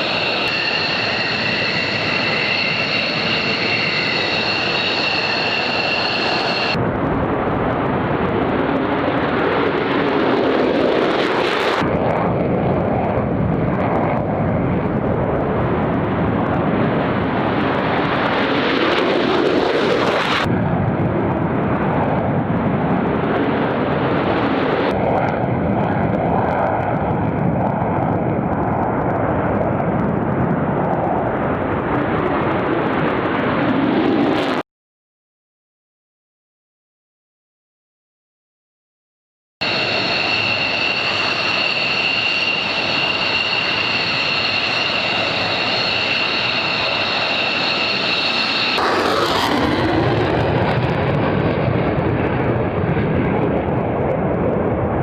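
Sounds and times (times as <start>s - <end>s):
faint turbine whine: 0.0s - 34.6s, 39.6s - 55.0s
jet aircraft taking off: 0.0s - 34.6s, 39.6s - 55.0s.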